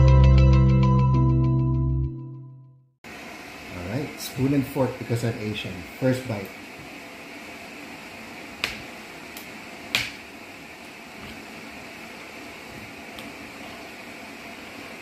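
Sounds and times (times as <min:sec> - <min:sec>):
steady room hum: 0:03.1 - 0:15.0.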